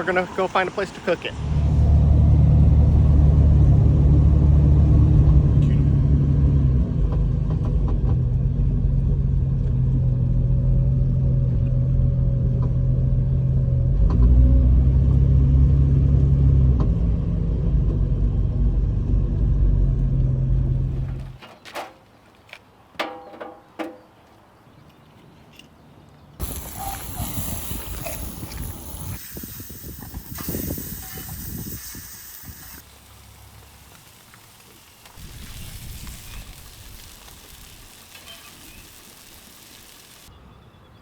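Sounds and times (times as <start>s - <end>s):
car engine and road rumble: 0.0s - 22.9s, 25.8s - 40.9s
sharp clicks and knocks: 21.1s - 24.2s.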